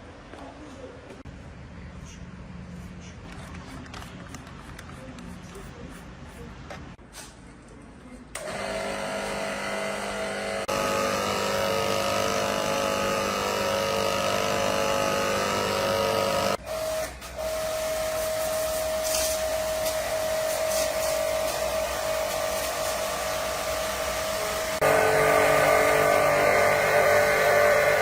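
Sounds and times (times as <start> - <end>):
compressor motor hum: 8.4 - 28.0.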